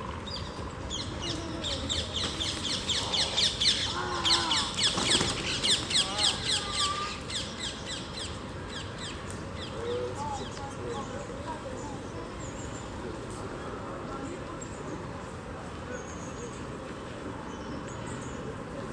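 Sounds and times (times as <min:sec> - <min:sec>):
faint voices: 0:00.0 - 0:07.7, 0:09.3 - 0:18.9.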